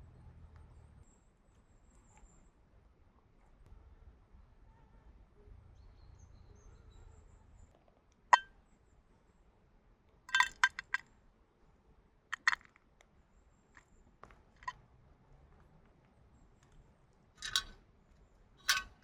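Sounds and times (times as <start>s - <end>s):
hard objects clicking together: 10.3s - 11.0s, 12.4s - 12.7s, 17.4s - 17.8s, 18.6s - 19.0s.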